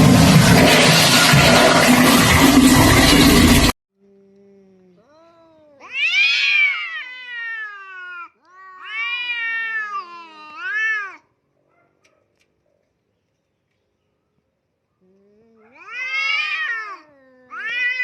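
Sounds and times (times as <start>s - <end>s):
loud rushing noise: 0.0s - 3.7s
cat yowling: 5.1s - 11.3s, 15.6s - 18.0s.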